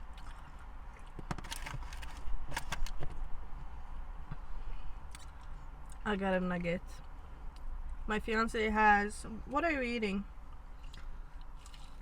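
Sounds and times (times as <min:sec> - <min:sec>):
crunching and chewing food: 0:00.0 - 0:02.8, 0:05.0 - 0:06.0, 0:10.5 - 0:12.0.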